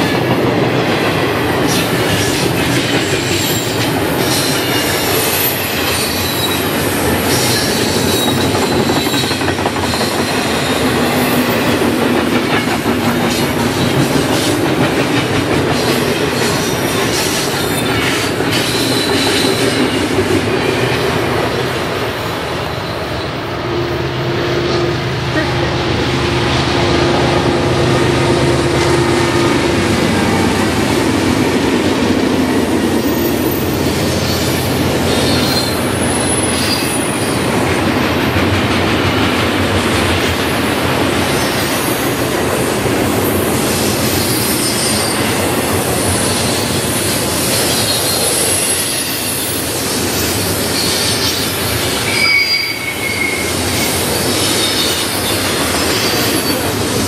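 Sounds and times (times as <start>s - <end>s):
diesel locomotive engines droning: 0.0s - 57.0s
steel wheels on rail: 0.0s - 57.0s
high wheel squeals: 33.0s - 37.5s, 47.4s - 56.8s.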